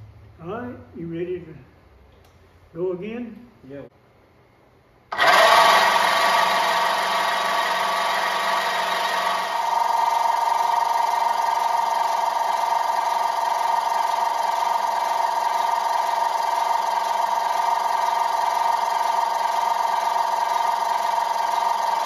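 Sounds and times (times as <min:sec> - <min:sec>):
starter motor cranking engine: 0:05.1 - 0:22.0.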